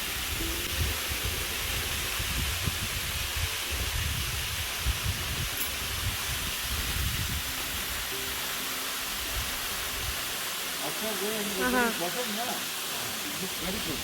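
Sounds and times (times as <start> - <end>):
waterfall rushing: 0.0 - 14.0
wind buffeting microphone: 0.2 - 8.0.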